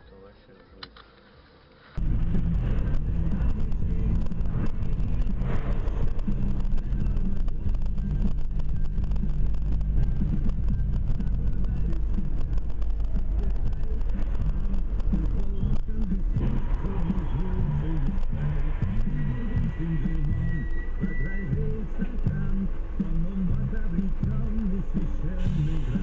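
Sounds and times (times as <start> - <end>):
car engine drone: 0.0 - 26.0
road noise inside car: 1.4 - 26.0.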